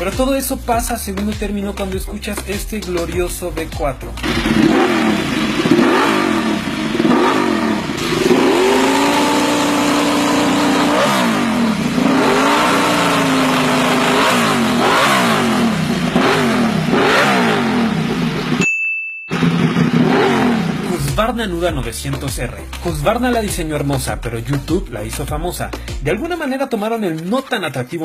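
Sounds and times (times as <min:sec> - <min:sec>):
motorcycle engine revving: 0:04.1 - 0:18.6, 0:19.3 - 0:21.3.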